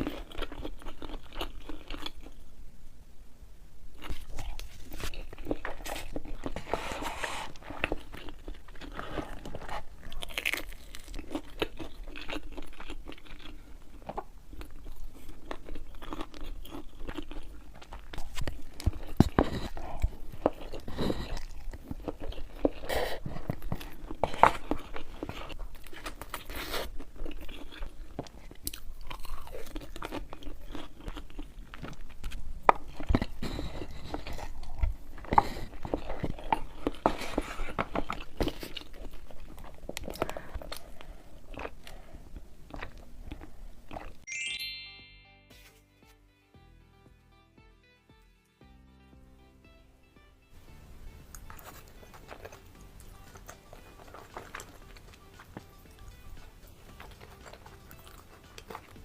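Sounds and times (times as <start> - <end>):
chewing crunchy food: 0.0 - 2.5, 4.0 - 44.3, 51.2 - 59.0.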